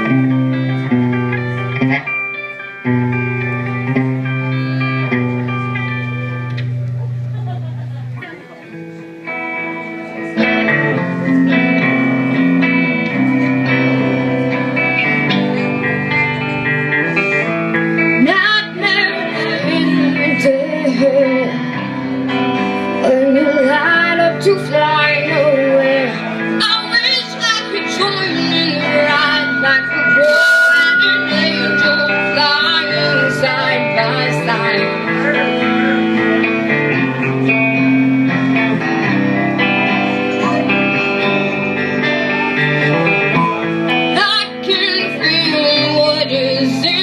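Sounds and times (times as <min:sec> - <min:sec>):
electric guitar chords: 0:00.0 - 0:47.0
person singing: 0:09.5 - 0:47.0.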